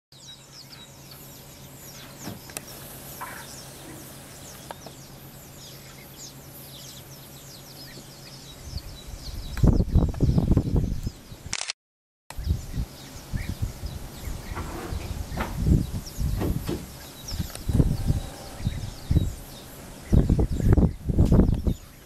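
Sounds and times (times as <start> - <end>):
birds chirping and singing: 0.2 - 11.4, 12.3 - 22.0
loud low rumbling: 12.4 - 21.6.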